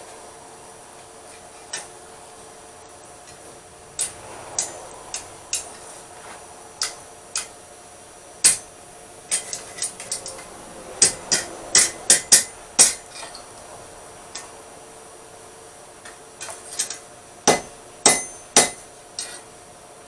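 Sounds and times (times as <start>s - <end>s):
hammer striking steel on anvil: 4.0s - 6.0s, 6.8s - 7.6s, 8.4s - 13.5s, 16.1s - 19.5s.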